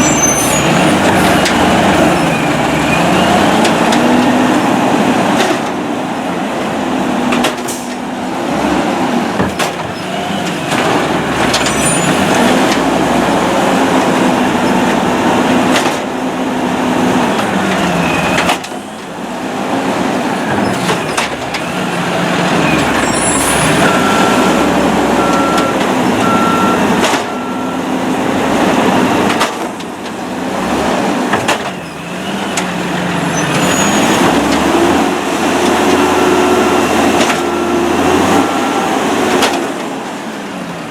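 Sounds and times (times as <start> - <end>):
diesel engine revving: 0.0 - 40.9
evenly spaced beeps: 25.2 - 27.8.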